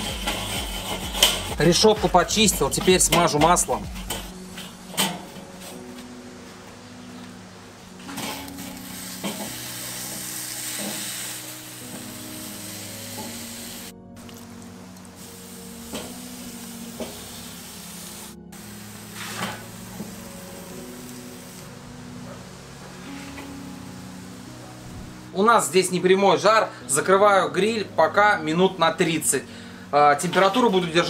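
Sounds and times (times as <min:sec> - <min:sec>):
chicken sizzling on a grill: 0:00.0 - 0:01.6, 0:07.8 - 0:25.1, 0:30.0 - 0:31.0
background music: 0:00.0 - 0:31.0.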